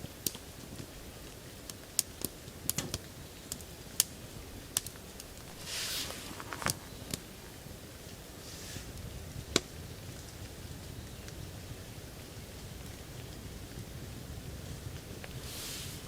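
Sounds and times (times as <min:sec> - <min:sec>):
short hiss: 0:05.5 - 0:06.9, 0:15.4 - 0:16.0.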